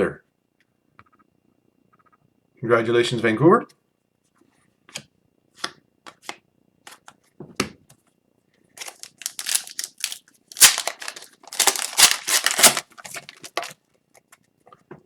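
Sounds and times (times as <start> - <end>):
wrapper clicks and rustles: 8.8 - 13.8
wrapper crinkling: 8.8 - 13.8.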